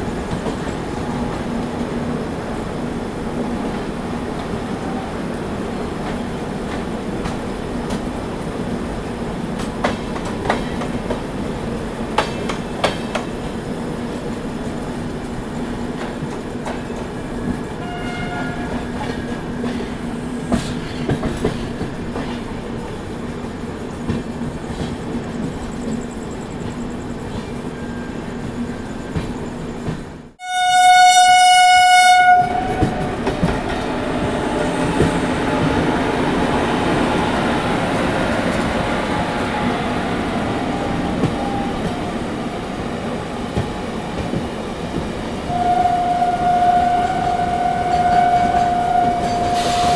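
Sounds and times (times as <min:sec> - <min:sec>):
train running with rail clatter: 0:00.0 - 0:49.9
train horn: 0:17.8 - 0:19.2, 0:30.4 - 0:40.0, 0:45.5 - 0:49.9.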